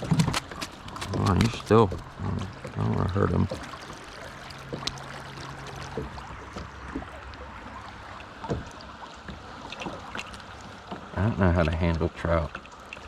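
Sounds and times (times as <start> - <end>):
creek water running: 0.0 - 13.0
knocks and taps in boat: 8.4 - 10.2.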